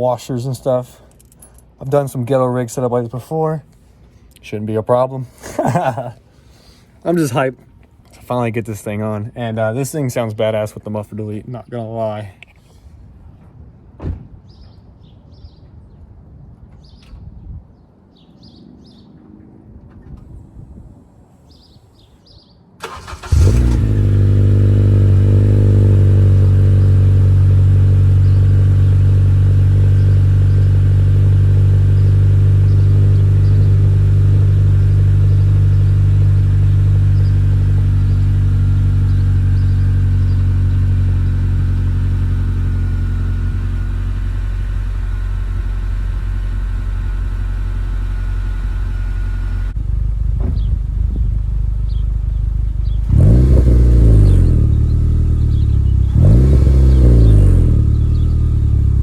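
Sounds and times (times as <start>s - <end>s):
car engine starting and idling: 22.8s - 59.0s.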